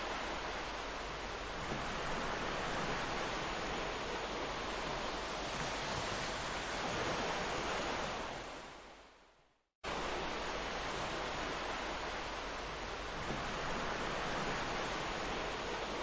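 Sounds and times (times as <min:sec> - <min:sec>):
ocean surf washing on beach: 0:00.0 - 0:16.0.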